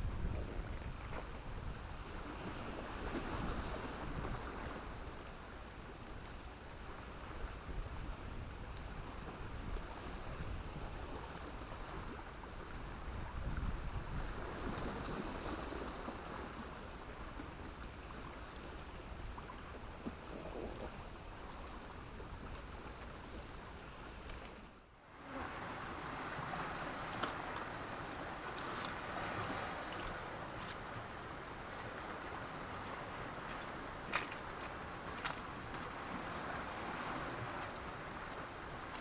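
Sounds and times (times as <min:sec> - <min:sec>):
small waves washing over stones: 0:25.2 - 0:39.0.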